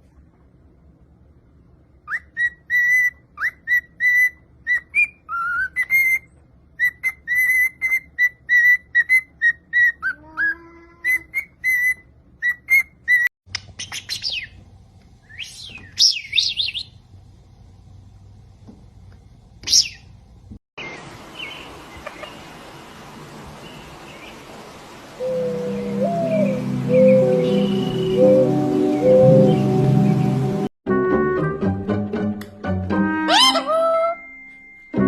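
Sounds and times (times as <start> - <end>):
parrot whistling: 2.1 - 10.2, 33.2 - 34.4
low hum: 24.6 - 30.7
high sweeping chirps: 25.2 - 30.7.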